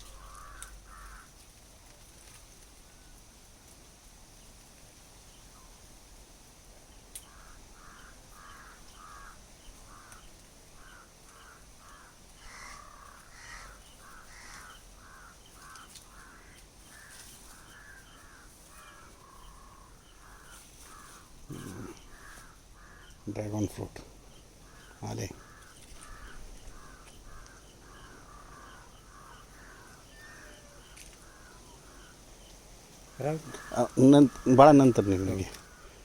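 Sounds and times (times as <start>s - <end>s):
crows cawing: 0.0s - 1.5s, 7.2s - 32.4s, 33.0s - 36.0s.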